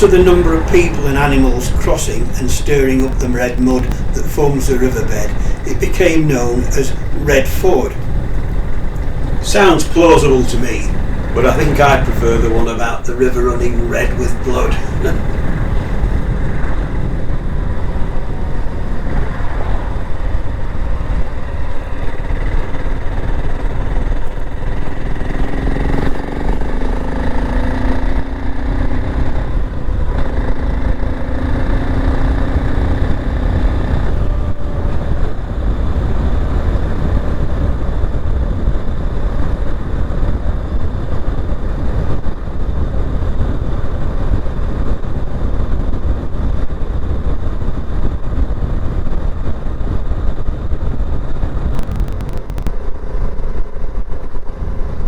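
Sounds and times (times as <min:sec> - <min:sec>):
wind rumble on microphone: 0:00.0 - 0:55.0
motorcycle engine running: 0:05.2 - 0:12.7.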